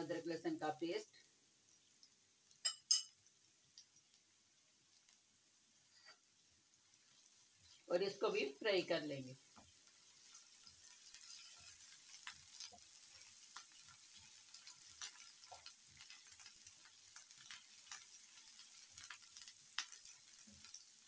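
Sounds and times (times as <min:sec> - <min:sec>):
onions sizzling in oil: 0:00.0 - 0:21.0
spatula scraping a pan: 0:09.6 - 0:16.5.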